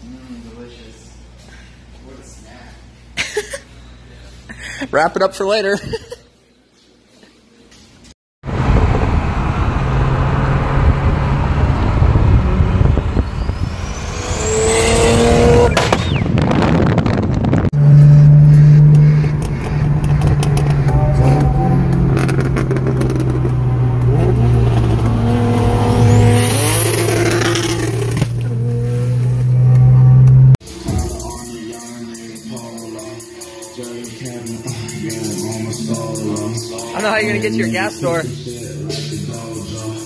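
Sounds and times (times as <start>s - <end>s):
car engine running hard: 8.4s - 30.6s.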